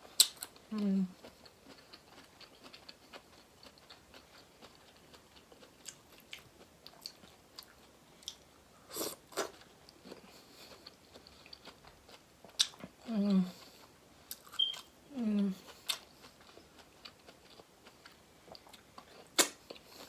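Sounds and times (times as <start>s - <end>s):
wet chewing mouth sounds: 15.6s - 20.0s.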